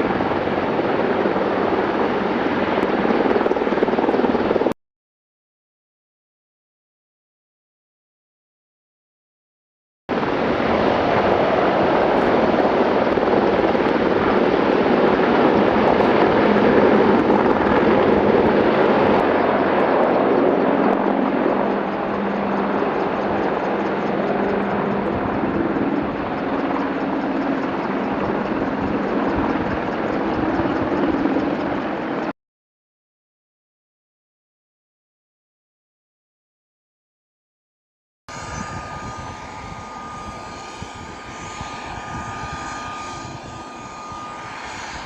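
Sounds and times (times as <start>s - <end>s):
helicopter rotor and engine: 0.0s - 4.7s, 10.1s - 32.3s, 38.3s - 45.0s.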